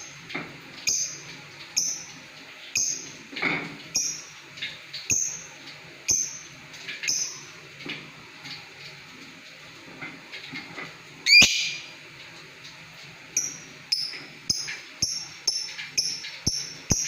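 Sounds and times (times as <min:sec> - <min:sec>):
lovebird high chirps: 0:00.9 - 0:01.2, 0:02.8 - 0:03.1, 0:04.0 - 0:04.3, 0:07.1 - 0:07.5, 0:11.2 - 0:11.9, 0:13.4 - 0:17.0
lovebird squawk: 0:11.2 - 0:11.9.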